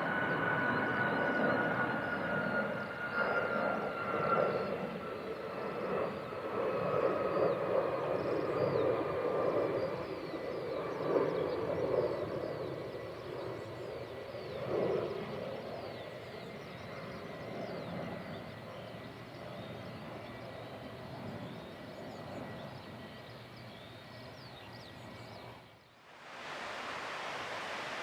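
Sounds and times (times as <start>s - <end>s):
jet airliner engine noise: 0.0s - 28.0s
small birds chirping: 15.8s - 25.9s.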